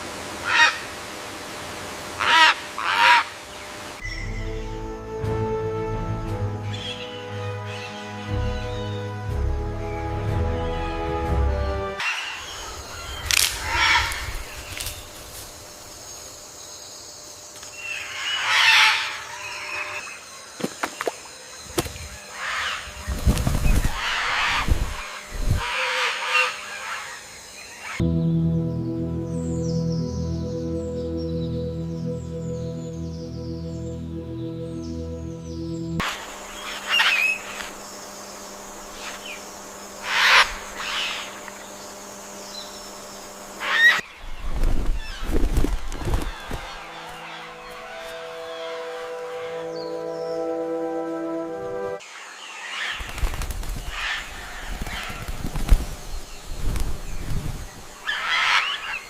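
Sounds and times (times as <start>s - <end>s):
harsh rasping bird calls: 2.2s - 4.7s, 11.8s - 15.1s, 17.8s - 20.4s, 22.1s - 28.0s, 36.0s - 50.7s, 52.0s - 56.5s, 57.1s - 59.0s
soft ambient music: 4.0s - 12.1s, 28.0s - 43.7s, 45.6s - 52.0s
faint steady hum: 21.4s - 52.0s.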